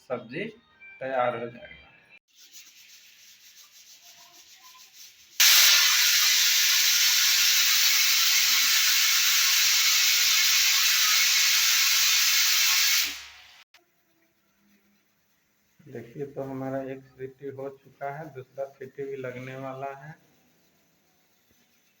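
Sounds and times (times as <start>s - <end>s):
pressure cooker whistling: 5.4s - 13.7s.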